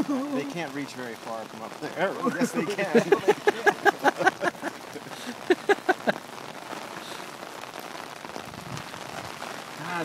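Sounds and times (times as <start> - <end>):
steady rain: 0.0 - 10.0
person laughing: 2.2 - 6.2.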